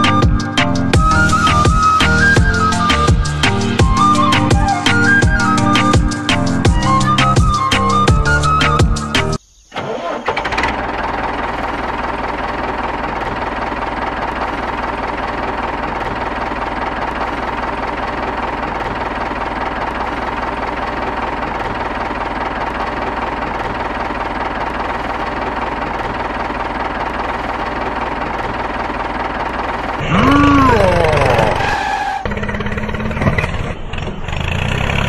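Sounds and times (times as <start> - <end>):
model tractor engine rumble: 9.7 - 35.0.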